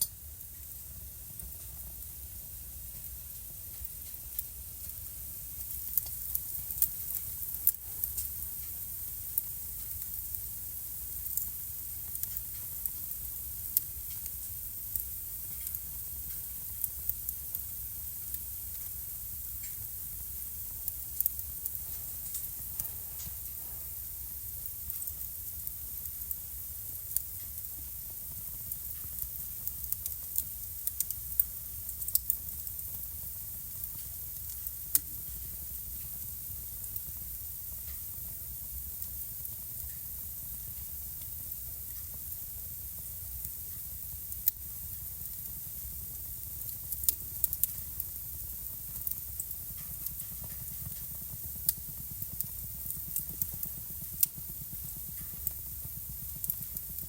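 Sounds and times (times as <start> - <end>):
fire low rumble and hiss: 0.0 - 57.0
wood fire crackling: 0.0 - 57.0.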